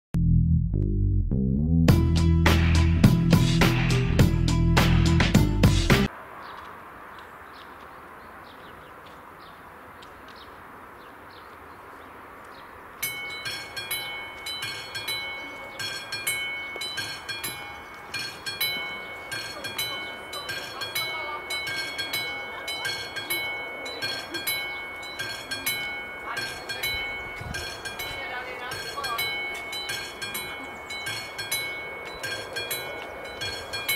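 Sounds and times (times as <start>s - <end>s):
level crossing warning bell: 13.0s - 33.9s.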